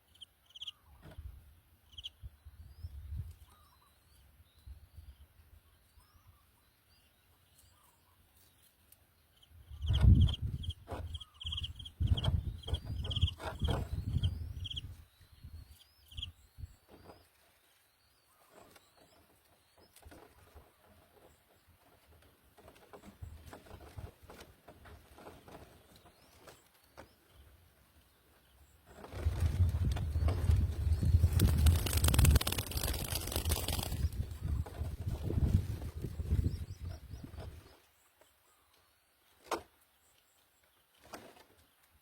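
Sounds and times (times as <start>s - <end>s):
faint bird chirps: 0.0s - 21.5s
short high bird peeps: 9.7s - 14.9s
rustling near microphone: 28.8s - 37.9s.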